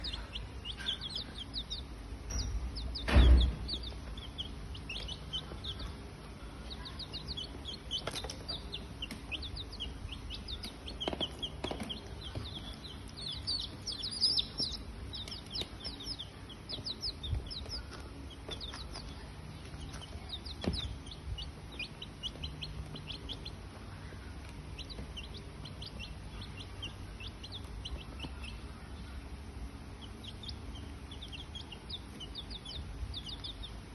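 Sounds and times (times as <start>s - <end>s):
birds chirping: 0.0s - 33.9s
loud thump: 3.0s - 3.8s.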